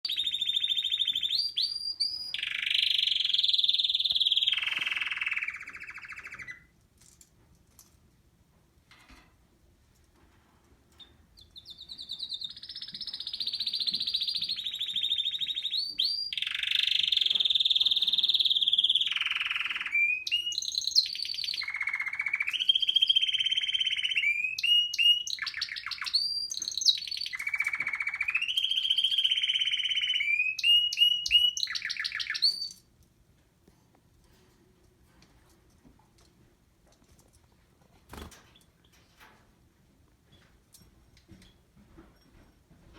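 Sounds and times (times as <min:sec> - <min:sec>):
canary singing rolling trills: 0:00.0 - 0:06.7, 0:11.0 - 0:32.8.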